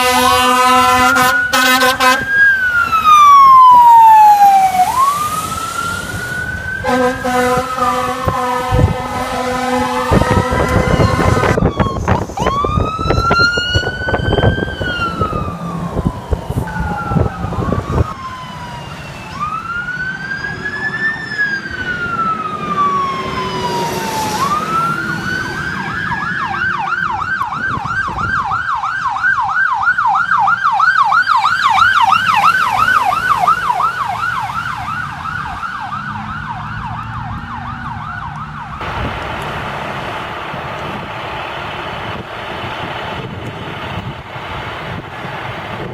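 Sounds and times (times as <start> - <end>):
electronic siren wailing and yelping: 0.0 - 38.9
heavy low rumble: 38.8 - 45.9.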